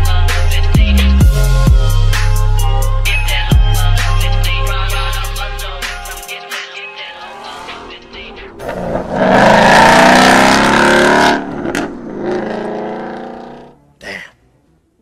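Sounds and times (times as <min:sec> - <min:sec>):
car engine accelerating hard: 0:07.7 - 0:15.0.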